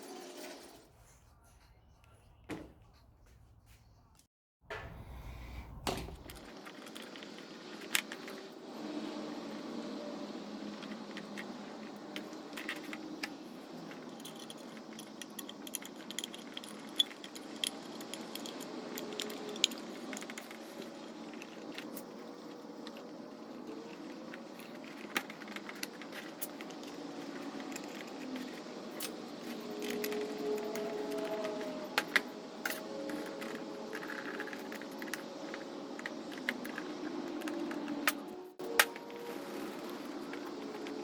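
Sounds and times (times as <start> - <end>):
low background hum: 0.9 - 6.8.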